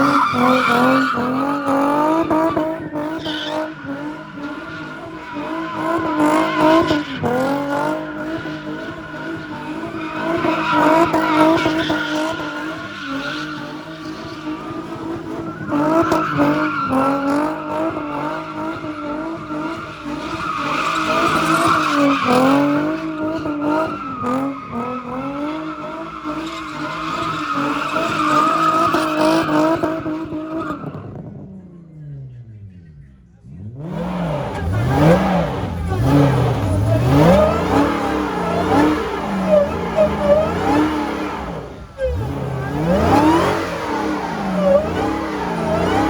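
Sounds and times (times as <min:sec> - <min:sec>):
tyres squealing: 0:00.0 - 0:30.6, 0:33.9 - 0:46.0
car engine revving: 0:00.0 - 0:46.0.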